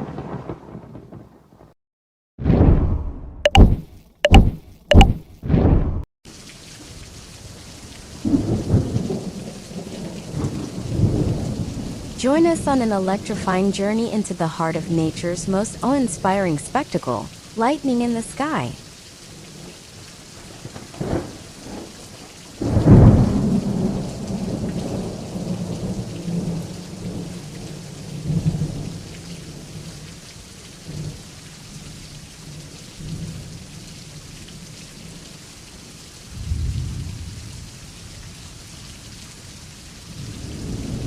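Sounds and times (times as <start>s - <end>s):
sharp thunder cracks: 2.4s - 3.7s, 22.6s - 27.2s, 36.4s - 37.5s
rain hiss: 6.3s - 41.0s
thunder rumbling: 8.2s - 13.6s, 22.6s - 28.9s, 36.4s - 37.7s, 40.1s - 41.0s.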